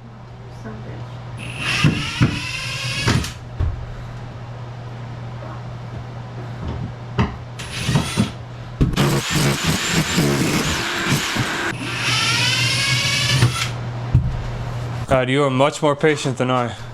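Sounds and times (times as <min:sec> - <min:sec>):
power drill whining: 0:01.4 - 0:03.4, 0:07.6 - 0:08.4, 0:09.0 - 0:13.8.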